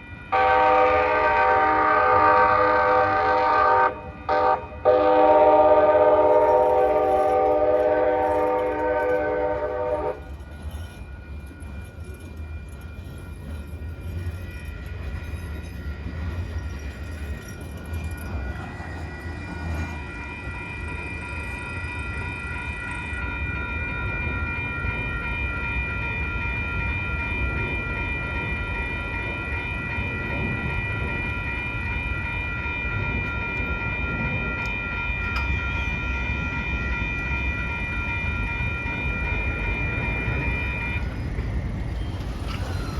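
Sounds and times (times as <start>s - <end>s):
crossing warning bells ringing: 0.0s - 42.9s
rumble of rolling train cars: 0.0s - 42.9s
train horn blast: 0.3s - 10.3s.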